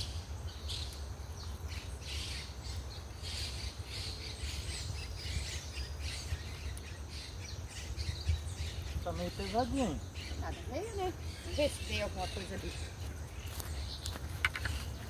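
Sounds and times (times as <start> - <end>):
birds chirping and squawking: 0.0 - 15.0.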